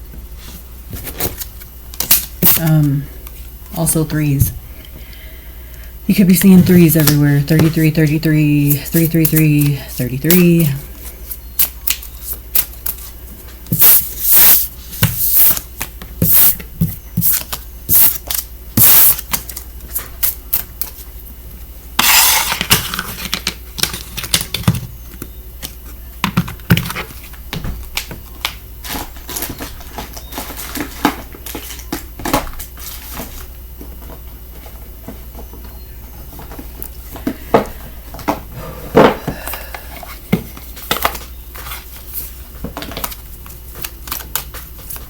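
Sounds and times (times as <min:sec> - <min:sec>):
cards snapping and slapping: 0:11.6 - 0:13.0, 0:42.9 - 0:45.0.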